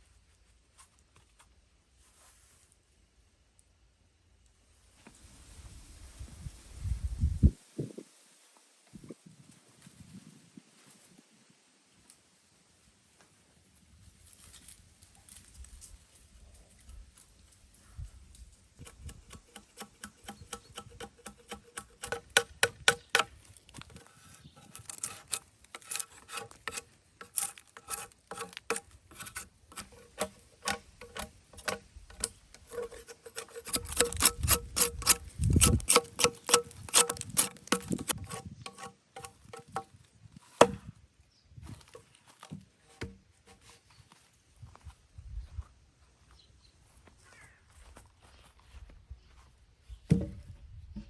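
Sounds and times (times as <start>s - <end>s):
hand tool rasping wood: 18.8s - 39.9s.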